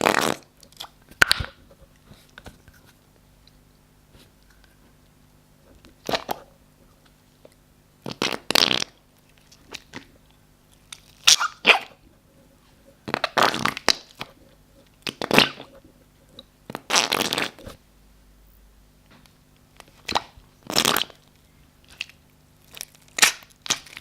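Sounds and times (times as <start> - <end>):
slime squelching: 19.8 - 24.0.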